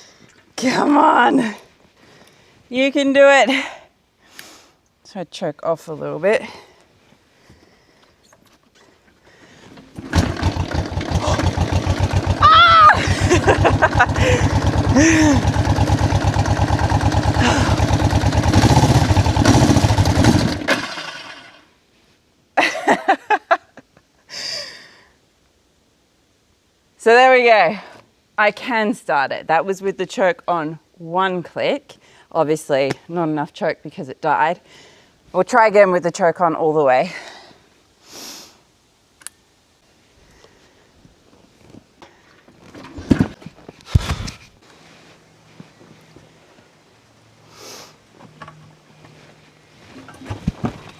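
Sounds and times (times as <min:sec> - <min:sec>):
motorcycle engine running: 0:09.9 - 0:21.6
person making vocal sounds: 0:11.2 - 0:11.6, 0:12.4 - 0:15.5, 0:17.4 - 0:17.9.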